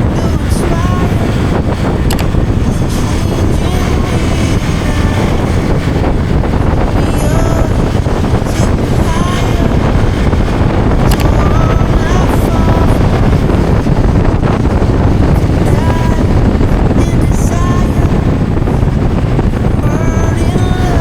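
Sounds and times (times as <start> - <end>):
motorcycle engine running: 0.0 - 21.0
wind buffeting microphone: 0.0 - 21.0.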